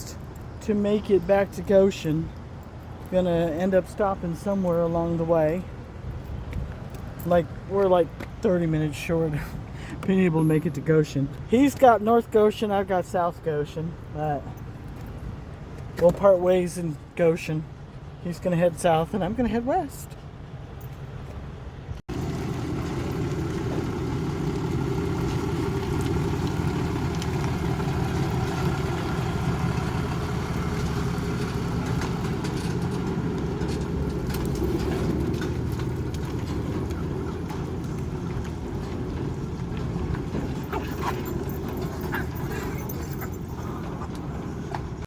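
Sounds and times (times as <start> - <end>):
road noise inside cab: 19.2 - 45.0
truck engine drone: 22.1 - 45.0.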